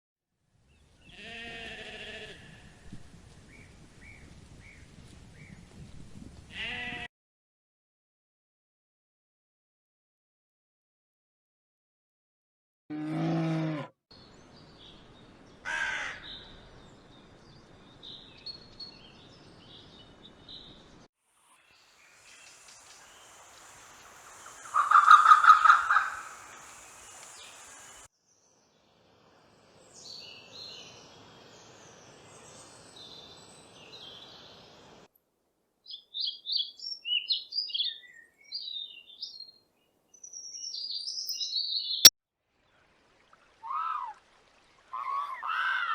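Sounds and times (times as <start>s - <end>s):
small birds chirping rapidly: 21.7s - 28.1s, 35.9s - 39.6s, 40.2s - 42.1s.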